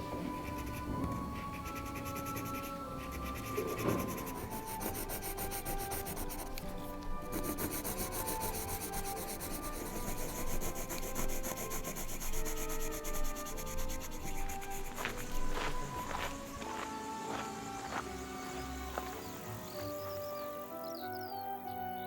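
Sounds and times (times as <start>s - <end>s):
pencil scratching across paper: 0.3s - 16.1s.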